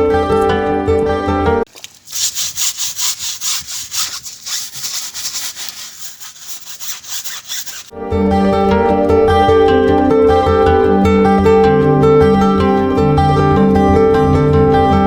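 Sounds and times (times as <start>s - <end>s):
plucked string music: 0.0s - 1.7s, 7.9s - 15.0s
hand scrubbing a car: 1.7s - 7.9s.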